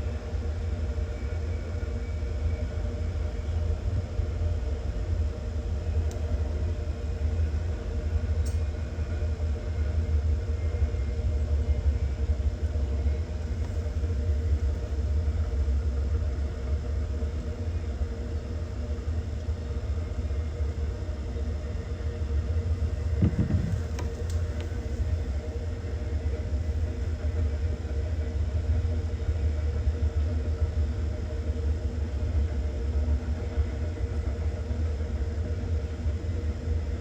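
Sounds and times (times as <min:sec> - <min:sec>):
faint even hum: 0:01.0 - 0:27.4
freight train rumble: 0:22.2 - 0:25.5.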